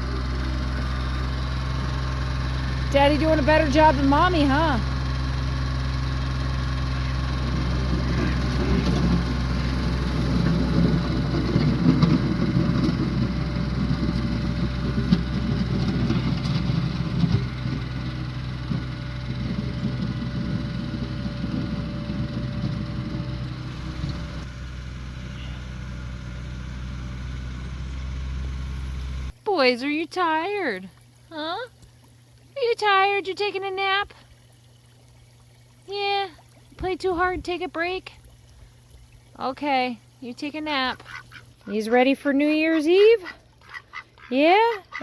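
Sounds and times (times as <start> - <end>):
tractor engine running: 0.0 - 29.4.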